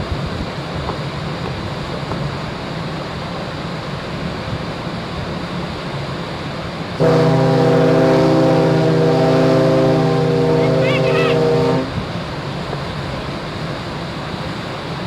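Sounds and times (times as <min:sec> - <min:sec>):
wind and sea noise: 0:00.0 - 0:15.0
ferry horn low blast: 0:07.0 - 0:12.2.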